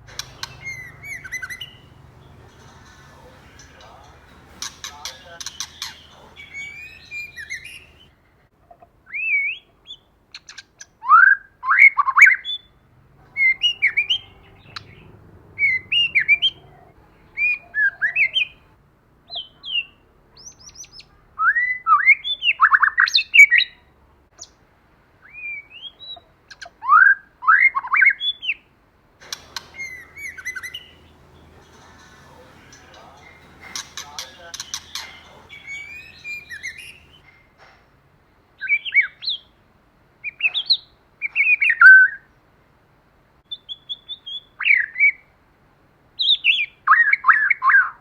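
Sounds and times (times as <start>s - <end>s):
bird singing whistled phrases: 0.1s - 8.1s, 13.3s - 16.6s, 29.4s - 37.2s.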